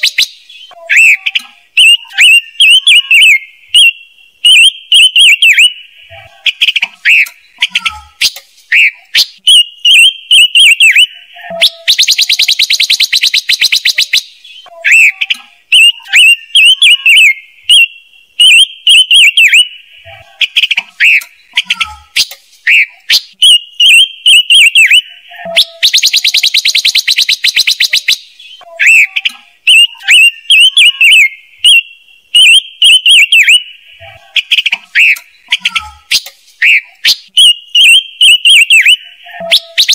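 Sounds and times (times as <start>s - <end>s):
bird chirps and rattling trill: 6.5s - 19.6s, 20.4s - 31.8s, 34.4s - 39.9s.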